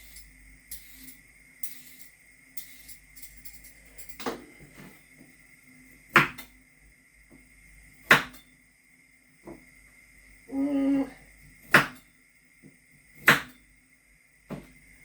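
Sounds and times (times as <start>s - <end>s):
sharp kitchen knocks: 6.2s - 6.5s, 8.1s - 8.4s, 11.7s - 12.0s, 13.2s - 13.6s.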